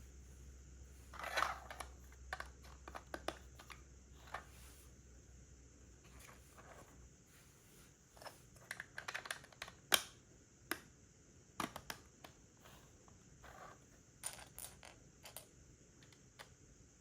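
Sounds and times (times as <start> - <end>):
plastic pieces clicking and rattling: 8.6 - 9.8.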